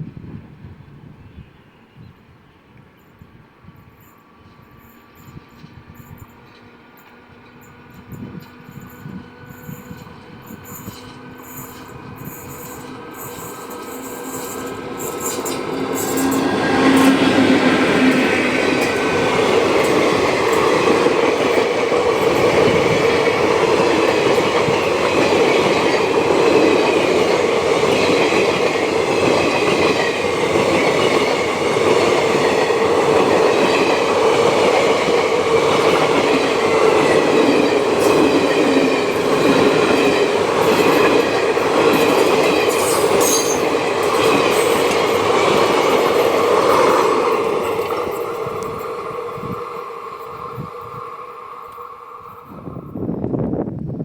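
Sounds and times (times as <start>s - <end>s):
train wheels clattering on rails: 3.9s - 50.6s
wheels squealing: 7.4s - 27.3s, 34.6s - 48.8s.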